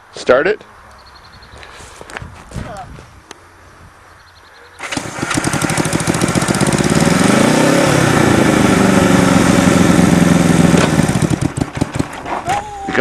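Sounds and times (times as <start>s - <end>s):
motorcycle engine revving: 4.8s - 12.4s.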